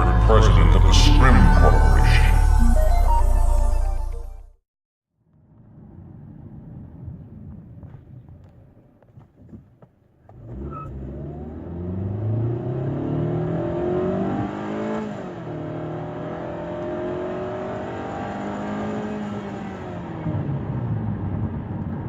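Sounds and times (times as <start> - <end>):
car engine accelerating hard: 10.3 - 22.0.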